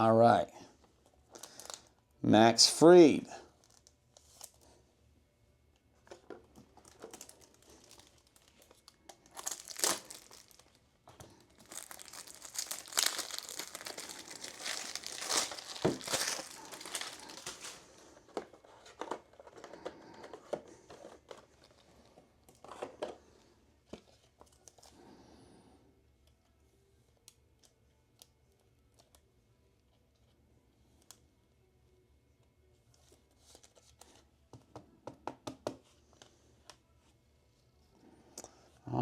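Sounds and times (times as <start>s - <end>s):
plastic packaging crinkling: 1.3s - 1.9s, 3.6s - 4.6s, 6.6s - 18.2s.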